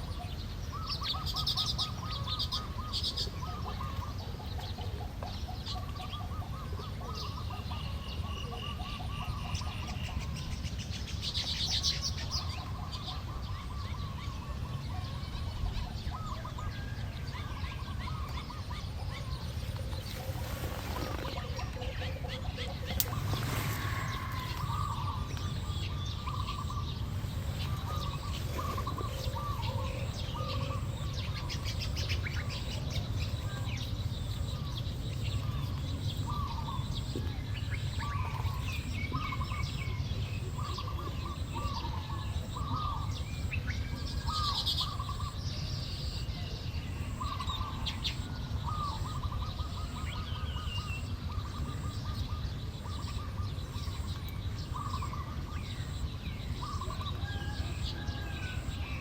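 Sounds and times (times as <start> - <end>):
weaver birds chattering: 0.0 - 59.0
steady low rumble: 14.7 - 40.8.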